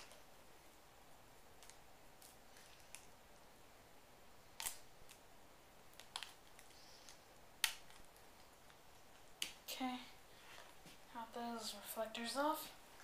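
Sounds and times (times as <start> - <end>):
plastic clicks and snaps: 4.6 - 5.2, 5.9 - 8.8.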